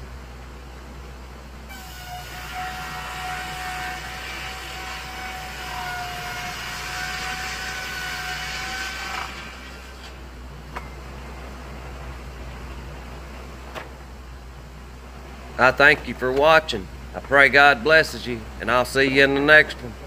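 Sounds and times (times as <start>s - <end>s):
engine humming: 0.0s - 20.0s
saw whining through board: 1.7s - 10.3s.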